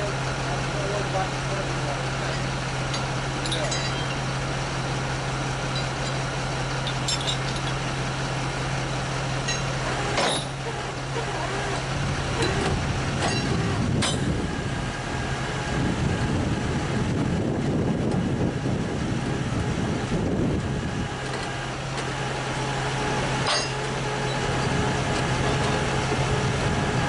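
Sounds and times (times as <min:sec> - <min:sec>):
truck engine running: 0:00.0 - 0:27.0
metallic clinks: 0:02.9 - 0:04.2, 0:06.8 - 0:07.8.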